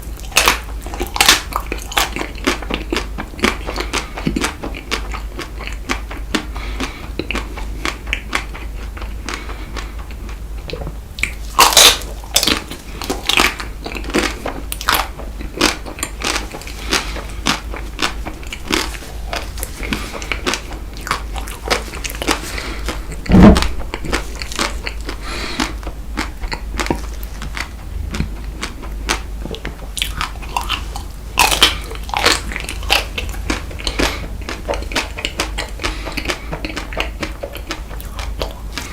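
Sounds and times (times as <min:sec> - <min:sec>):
chocolate crunching in mouth: 0:00.0 - 0:38.9
low thump: 0:23.3 - 0:23.9.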